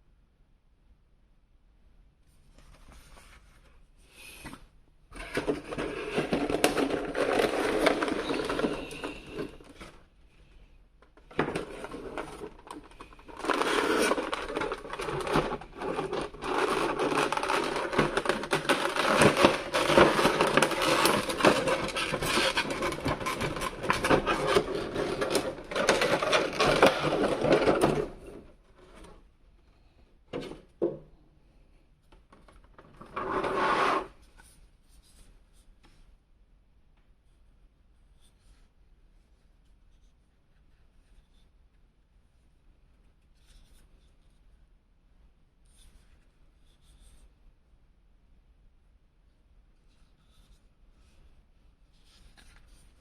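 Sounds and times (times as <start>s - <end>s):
cardboard and plastic rustling: 5.2s - 10.1s, 11.1s - 29.2s.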